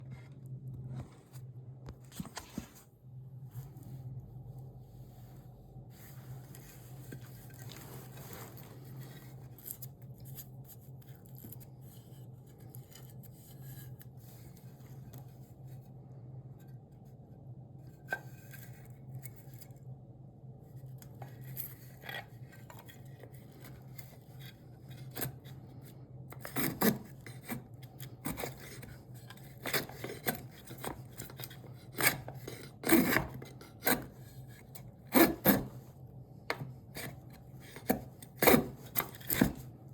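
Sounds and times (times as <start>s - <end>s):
hand tool scraping wood: 21.4s - 35.9s, 36.5s - 39.8s.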